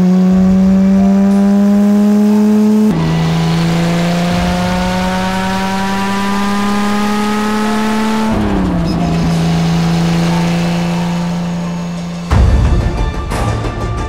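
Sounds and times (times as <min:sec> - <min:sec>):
racing car engine revving: 0:00.0 - 0:13.6
music: 0:08.0 - 0:14.0.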